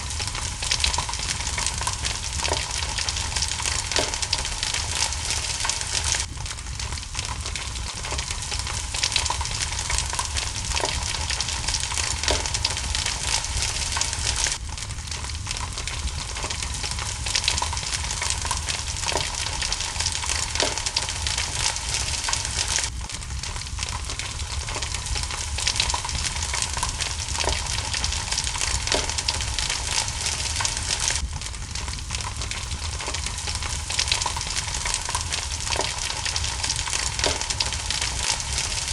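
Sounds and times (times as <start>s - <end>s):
crackling fireplace: 0.0s - 38.9s
steady rain hiss: 0.0s - 38.9s
small pops: 0.9s - 14.6s, 17.3s - 22.9s, 28.8s - 33.3s, 34.2s - 38.9s.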